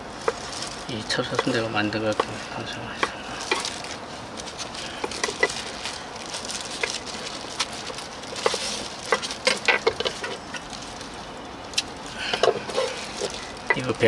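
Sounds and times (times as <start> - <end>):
utensils clicking and tapping: 1.1 - 10.7, 11.8 - 14.0
food sizzling on a griddle: 4.9 - 11.0.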